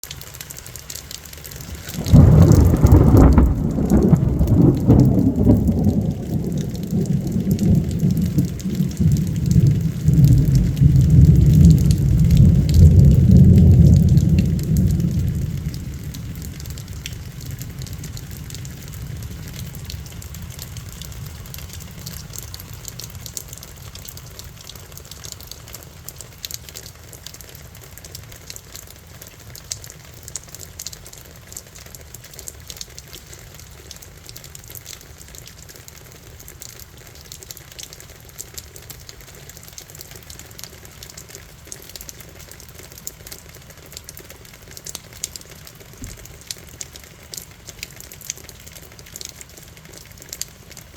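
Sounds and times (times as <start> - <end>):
heavy rain pattering: 0.0 - 50.9
low roll of thunder: 1.7 - 23.4.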